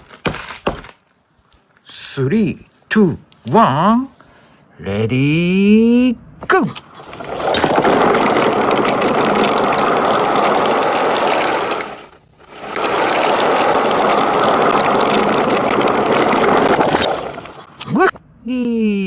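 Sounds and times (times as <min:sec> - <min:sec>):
marbles rolling on track: 0:06.9 - 0:17.8.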